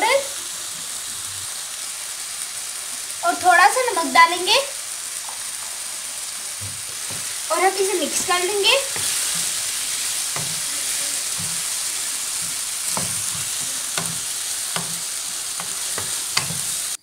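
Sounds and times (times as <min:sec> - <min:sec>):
masala sizzling in a wok: 0:00.0 - 0:17.0
wooden spatula scraping pan: 0:06.8 - 0:17.0.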